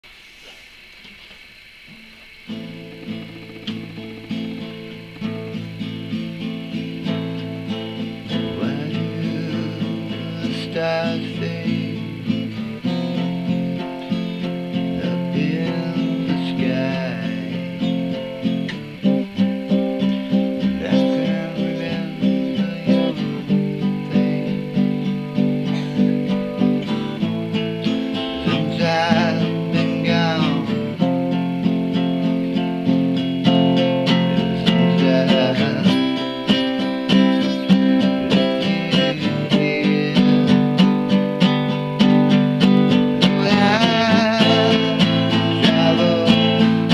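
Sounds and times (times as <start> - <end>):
acoustic guitar strumming: 0.0 - 46.9
person vocalizing: 25.5 - 26.9.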